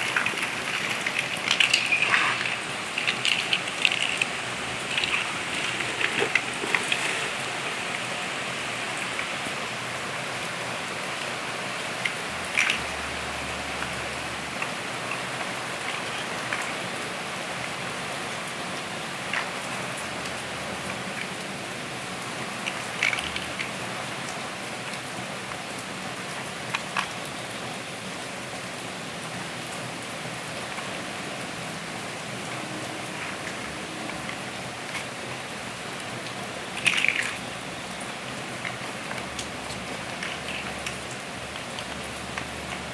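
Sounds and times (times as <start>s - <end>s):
plastic bricks clicking: 0.0s - 9.5s, 11.9s - 13.0s, 36.7s - 42.9s
steady rain-like hiss: 0.0s - 42.9s.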